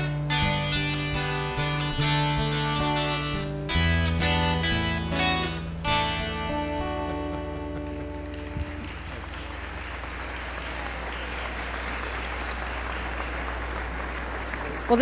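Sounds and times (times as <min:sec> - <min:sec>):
dulcimer chords: 0:00.0 - 0:08.3
audience applauding: 0:07.2 - 0:15.0.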